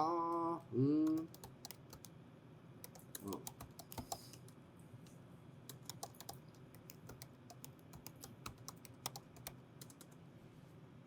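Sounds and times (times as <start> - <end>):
keyboard typing: 1.0 - 2.1, 2.8 - 4.6, 5.7 - 10.2.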